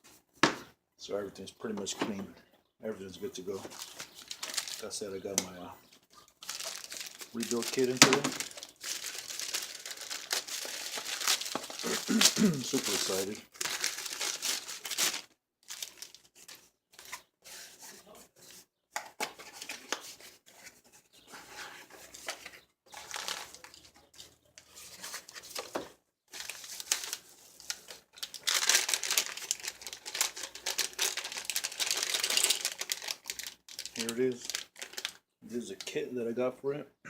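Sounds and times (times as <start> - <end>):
packaging crinkling and tearing: 3.6 - 17.7, 22.0 - 35.2.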